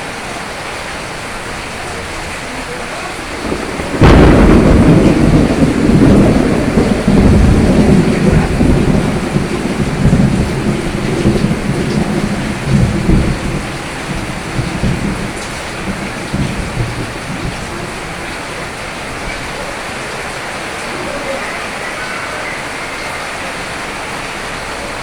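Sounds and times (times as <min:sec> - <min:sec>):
steady rain: 0:00.0 - 0:25.0
thunderclap and low rumble: 0:03.0 - 0:21.0.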